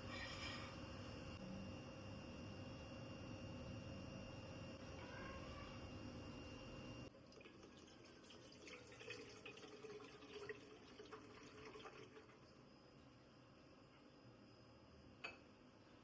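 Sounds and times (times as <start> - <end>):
water at a sink: 7.1 - 12.7.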